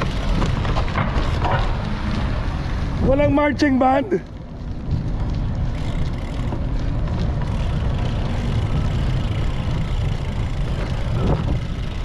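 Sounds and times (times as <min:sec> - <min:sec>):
road noise: 0:00.0 - 0:12.0
wind on microphone: 0:04.5 - 0:12.0.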